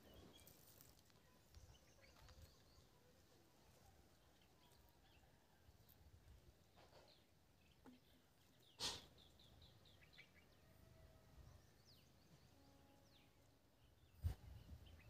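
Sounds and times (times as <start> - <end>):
faint bird chirps: 0.0 - 5.5.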